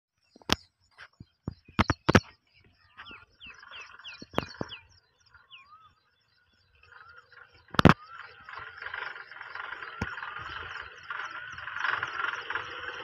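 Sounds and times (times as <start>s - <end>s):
small birds chirping: 0.1s - 13.0s
sharp knocks: 1.5s - 2.3s
bird whistles: 2.9s - 6.0s, 6.8s - 13.0s.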